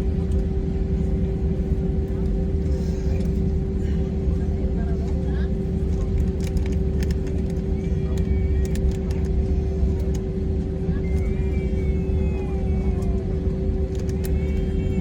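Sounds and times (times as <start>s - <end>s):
airliner cabin rumble and hum: 0.0s - 15.0s.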